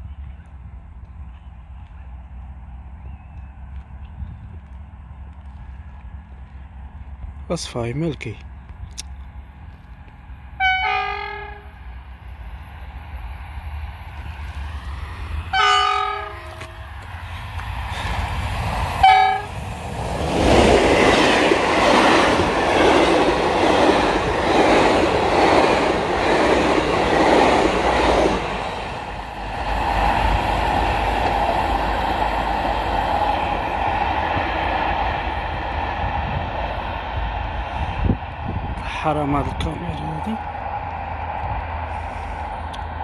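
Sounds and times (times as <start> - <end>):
train horn blasts: 10.6 - 11.7, 15.5 - 16.8, 19.0 - 19.5.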